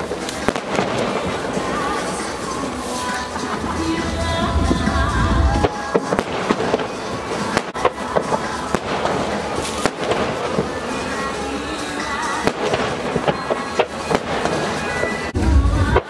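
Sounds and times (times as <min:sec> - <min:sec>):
firework shells bursting: 0:00.0 - 0:11.2.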